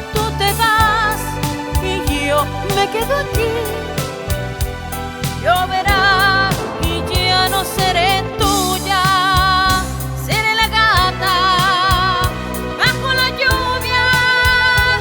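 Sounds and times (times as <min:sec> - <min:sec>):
bass: 0:00.0 - 0:15.0
lead melody with vibrato: 0:02.2 - 0:10.3
drum beat: 0:05.9 - 0:08.8.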